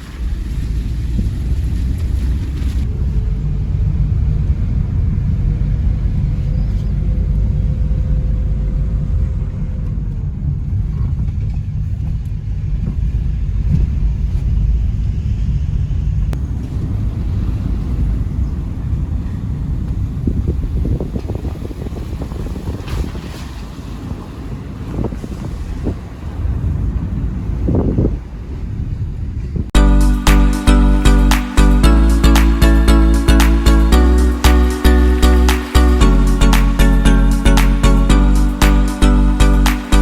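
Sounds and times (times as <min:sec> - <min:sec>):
vehicle rumble: 0:00.0 - 0:22.2.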